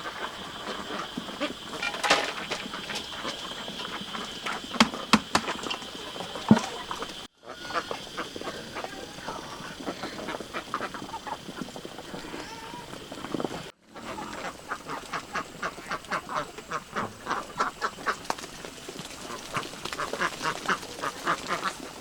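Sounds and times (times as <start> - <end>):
ducks quacking: 0.0 - 22.0
farmyard sounds: 0.0 - 22.0
sharp knocks: 4.5 - 5.7.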